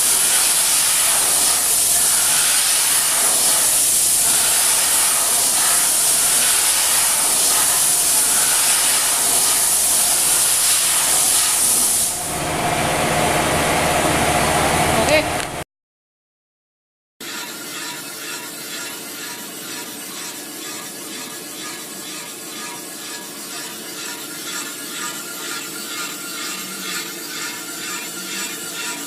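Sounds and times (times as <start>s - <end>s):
loud steady hiss: 0.0s - 12.5s
low machine hum: 12.1s - 15.6s.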